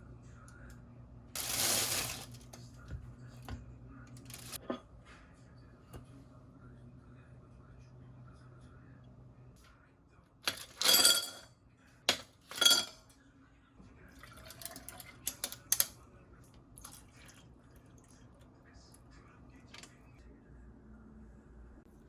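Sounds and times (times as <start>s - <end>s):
metal kitchenware clattering: 10.5s - 11.5s, 12.1s - 13.0s.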